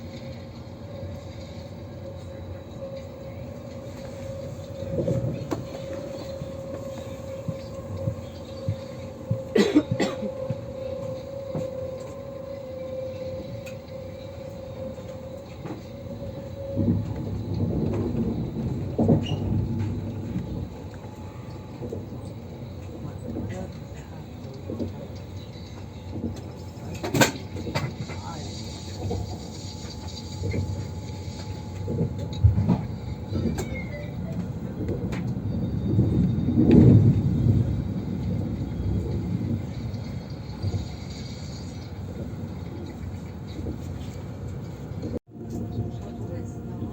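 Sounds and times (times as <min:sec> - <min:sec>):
high-speed train hum: 0:00.0 - 0:46.9
train rumble: 0:00.0 - 0:46.9.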